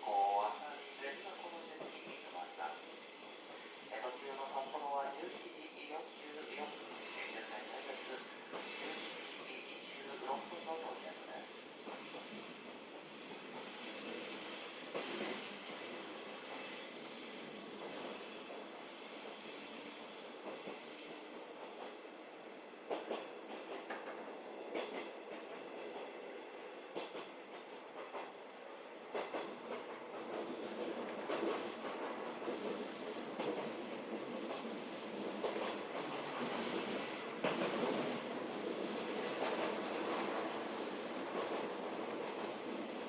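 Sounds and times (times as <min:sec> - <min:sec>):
electric train running: 0:00.0 - 0:22.0.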